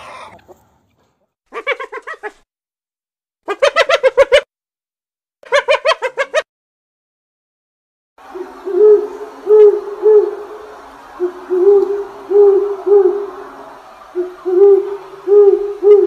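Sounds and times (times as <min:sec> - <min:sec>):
faint steady drone: 0:08.2 - 0:16.0
owl hooting: 0:08.2 - 0:16.0.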